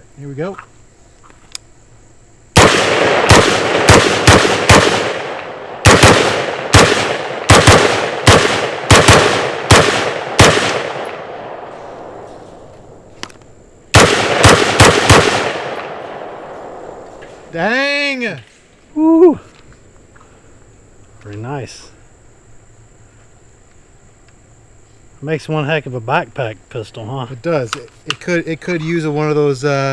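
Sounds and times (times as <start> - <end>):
gunshots with echo: 2.6 - 11.8, 13.9 - 16.6.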